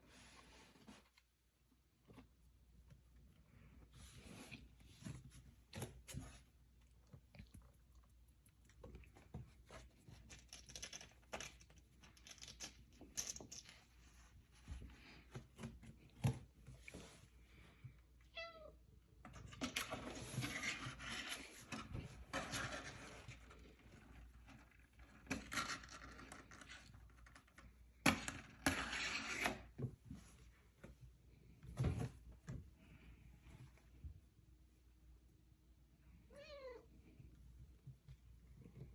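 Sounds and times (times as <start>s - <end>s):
cat meowing: 36.3s - 36.9s.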